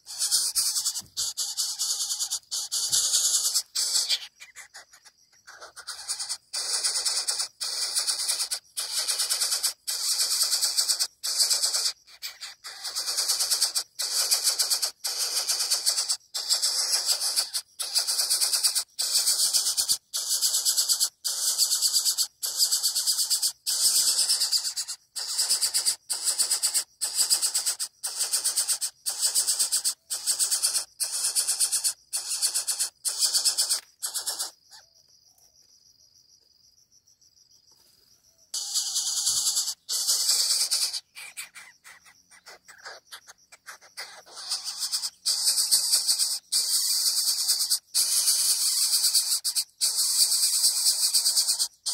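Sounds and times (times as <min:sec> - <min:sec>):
chick giving harsh begging calls: 0:00.0 - 0:09.0, 0:38.6 - 0:43.0.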